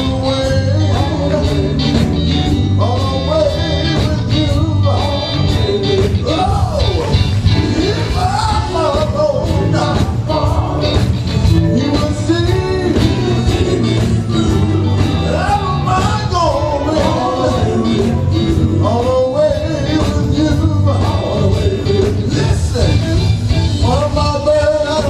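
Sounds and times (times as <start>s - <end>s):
bass: 0.0s - 25.0s
drum beat: 0.0s - 25.0s
gospel band playing: 0.0s - 25.0s
sliding lead melody: 0.0s - 25.0s.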